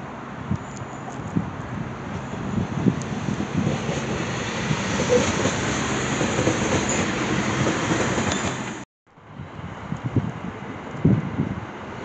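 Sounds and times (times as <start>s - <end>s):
diesel train passing: 0.0s - 12.0s.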